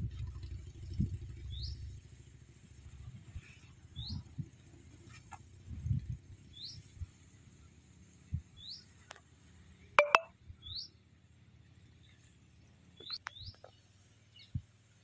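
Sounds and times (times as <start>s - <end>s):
bird chirping: 10.0s - 10.3s.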